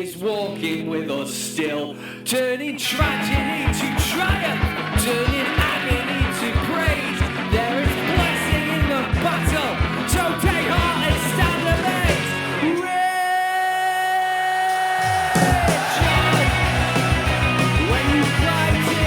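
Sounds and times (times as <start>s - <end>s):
person shouting lead vocal: 2.7s - 19.0s
live rock band playing: 3.0s - 12.8s, 15.2s - 19.0s.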